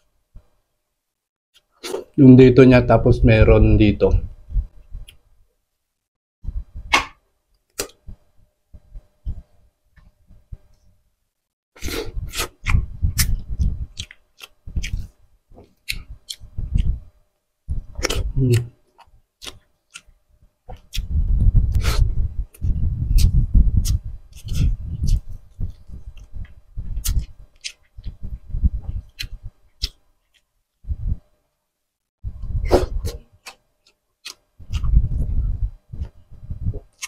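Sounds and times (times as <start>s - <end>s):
person chewing and lip-smacking: 12.0s - 17.0s, 17.7s - 20.1s, 20.7s - 30.4s, 32.4s - 35.4s.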